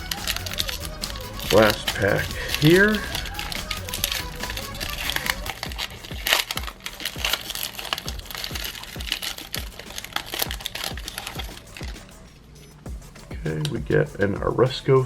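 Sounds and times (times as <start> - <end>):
plastic wrapper crinkling: 0.0 - 12.0
background music with steady beat: 0.0 - 15.0.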